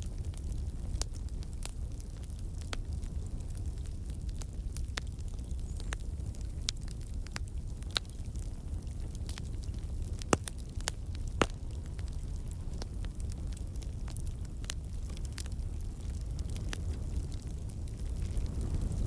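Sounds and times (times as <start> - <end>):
campfire crackling: 0.0 - 19.0
low rumble of fire: 0.0 - 19.0
sharp pops and snaps: 10.2 - 12.1.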